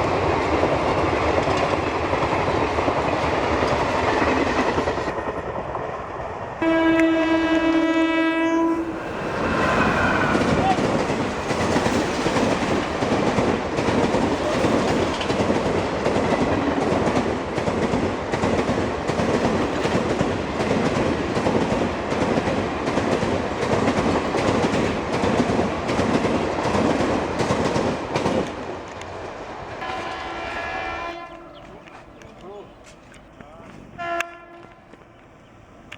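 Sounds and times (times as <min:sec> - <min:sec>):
train passing with wheel clicks: 0:00.0 - 0:35.9
faint train horn: 0:06.6 - 0:11.1, 0:29.8 - 0:32.0, 0:33.9 - 0:35.2.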